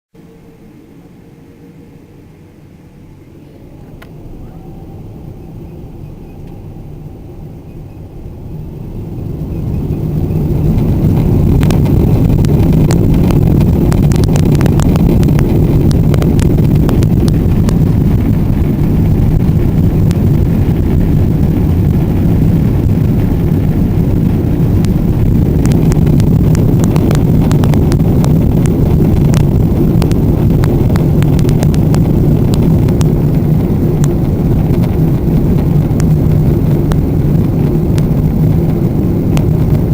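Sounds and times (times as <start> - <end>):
jet engines spooling up: 0.2 - 39.9.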